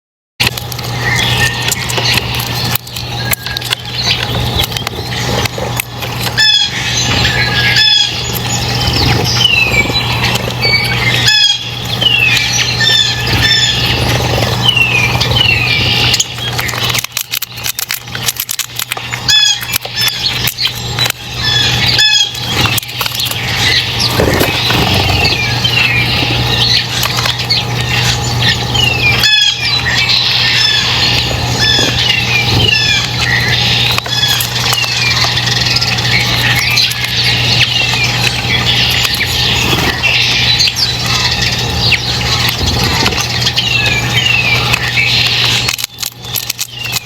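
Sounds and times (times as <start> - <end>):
sharp clicks: 0.4 - 6.4, 8.3 - 28.6, 31.0 - 47.0
small birds chirping: 0.4 - 47.0
steady low hum: 0.4 - 47.0.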